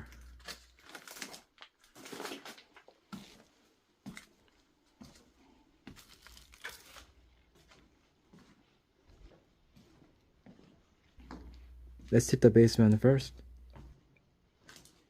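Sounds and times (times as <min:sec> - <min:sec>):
paper crinkling and rustling: 0:00.0 - 0:03.5, 0:05.9 - 0:07.8, 0:14.6 - 0:15.0.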